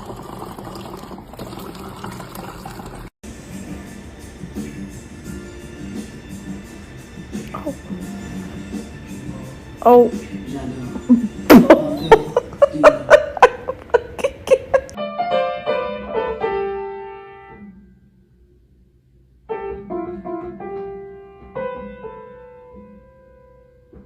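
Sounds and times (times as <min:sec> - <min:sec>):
piano notes: 0:11.1 - 0:18.0, 0:19.4 - 0:24.0.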